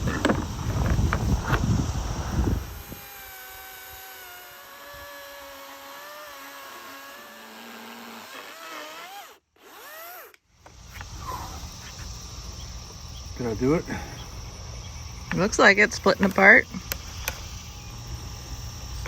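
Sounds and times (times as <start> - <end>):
power tool cutting wood: 1.0 - 10.4.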